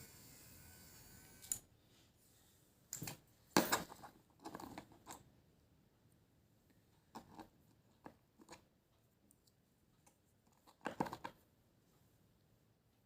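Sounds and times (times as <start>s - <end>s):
electric massager motor humming: 0.0s - 1.6s.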